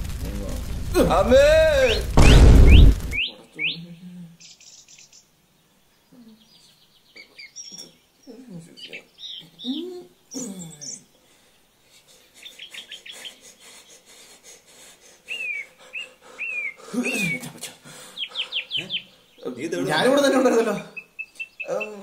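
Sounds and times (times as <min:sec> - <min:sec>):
small birds chirping: 0:00.0 - 0:22.0
man's voice: 0:00.2 - 0:03.3.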